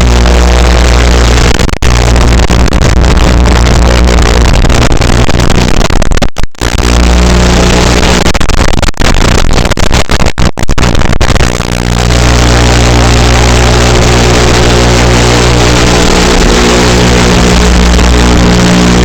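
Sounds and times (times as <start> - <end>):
drone motors humming: 0.0 - 5.7, 11.6 - 19.0.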